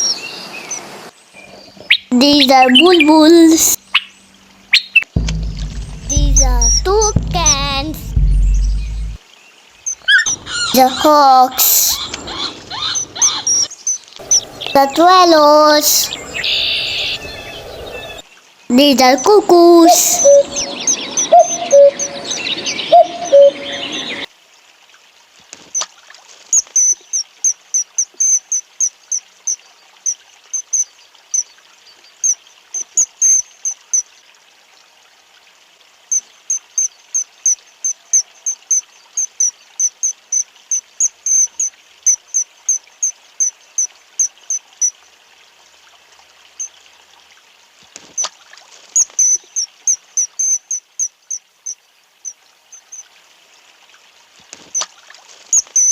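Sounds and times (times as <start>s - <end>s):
water trickling: 2.2s - 16.6s, 24.3s - 55.9s
small bird chirping: 4.7s - 9.2s, 9.8s - 18.2s, 49.0s - 51.4s, 55.5s - 55.9s
low two-note bird call: 5.2s - 9.2s.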